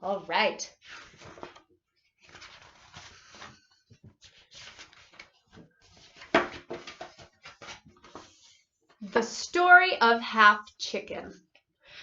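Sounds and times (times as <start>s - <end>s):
book pages turning: 0.8s - 8.7s.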